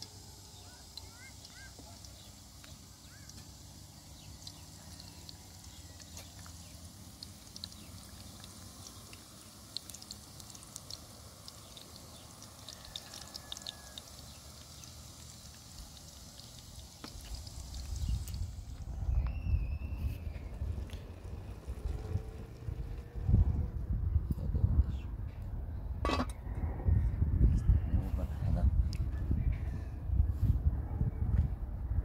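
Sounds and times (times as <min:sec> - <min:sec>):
eggplant frying in hot oil: 0:00.0 - 0:23.4
low steady rumble: 0:00.0 - 0:32.0.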